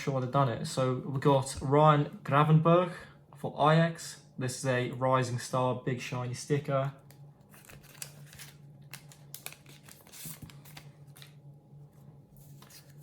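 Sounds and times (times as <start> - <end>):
sticker packets rustling: 7.5 - 11.4.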